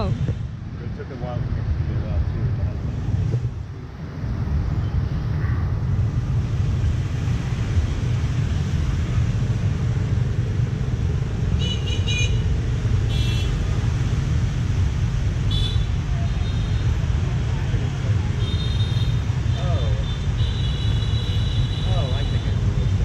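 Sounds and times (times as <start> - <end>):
city street traffic rumbling: 0.0 - 23.0.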